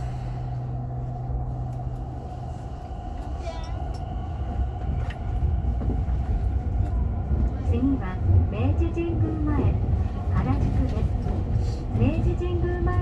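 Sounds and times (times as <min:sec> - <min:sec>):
steady low hum: 0:00.0 - 0:07.0
subway train rumble: 0:00.0 - 0:13.0.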